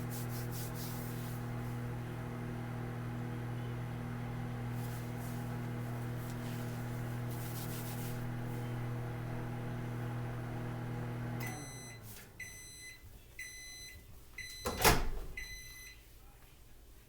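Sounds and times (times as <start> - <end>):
microwave oven humming: 0.0 - 16.0
microwave beeper: 8.8 - 16.0.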